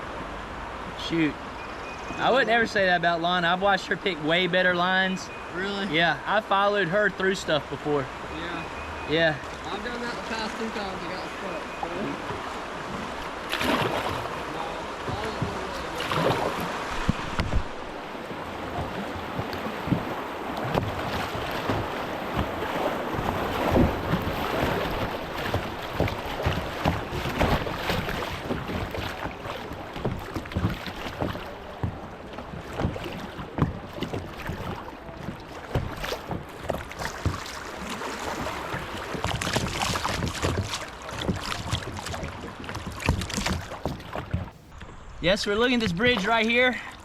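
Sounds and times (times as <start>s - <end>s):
water splashing and sloshing: 0.0s - 47.0s
paddle strokes and knocks: 8.9s - 47.0s
wind on microphone: 15.1s - 29.4s.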